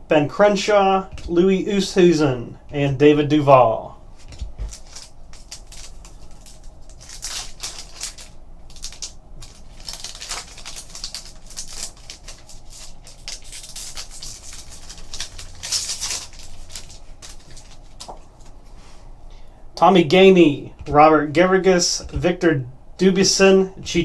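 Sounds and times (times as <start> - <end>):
trading cards clicking and rustling: 4.2 - 18.6.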